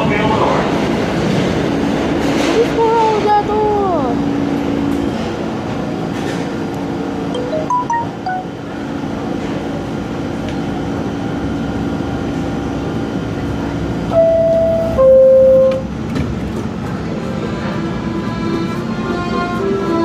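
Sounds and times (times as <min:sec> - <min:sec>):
subway train rumbling: 0:00.0 - 0:20.0
two-note falling door chime: 0:07.4 - 0:08.6.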